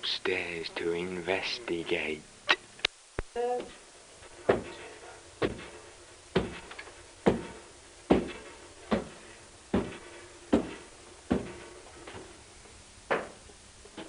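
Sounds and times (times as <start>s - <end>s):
footsteps on stairs: 3.6s - 12.3s.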